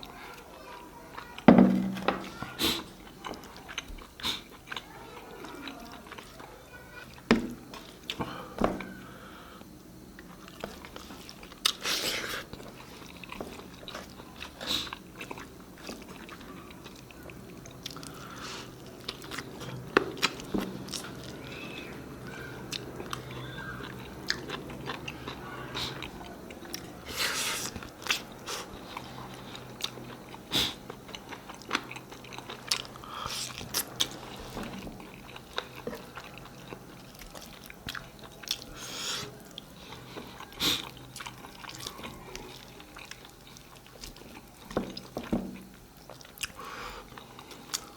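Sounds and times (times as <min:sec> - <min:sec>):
chewing and biting: 0:10.2 - 0:47.9.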